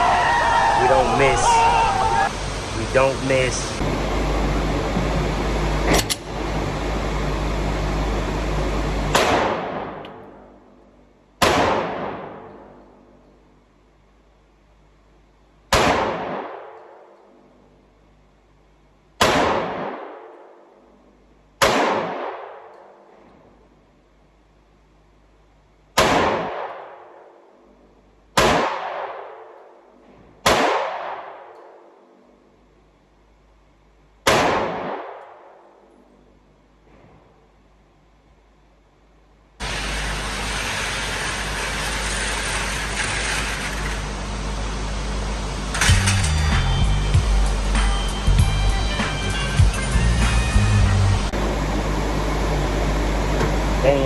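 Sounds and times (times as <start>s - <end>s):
echoing gunshots: 9.1s - 10.4s, 11.4s - 12.6s, 15.7s - 17.0s, 19.2s - 20.6s, 21.6s - 23.2s, 25.9s - 27.4s, 28.3s - 29.8s, 30.4s - 31.8s, 34.2s - 35.8s.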